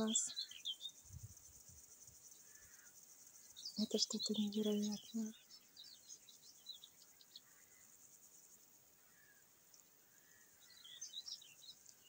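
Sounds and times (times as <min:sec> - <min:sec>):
soft whistled bird notes: 0:00.0 - 0:08.0, 0:09.0 - 0:12.0
small birds chirping: 0:00.0 - 0:12.0.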